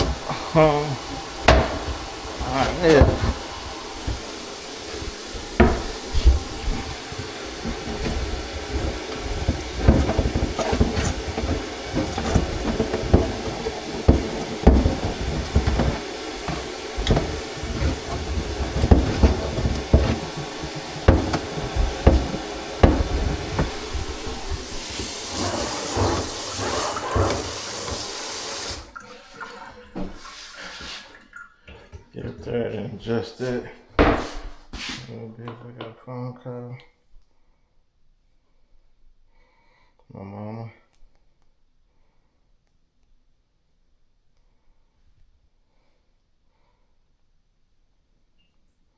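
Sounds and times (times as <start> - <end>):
plumbing knocks and clatter: 0.0 - 30.3
running water hiss: 0.0 - 32.0.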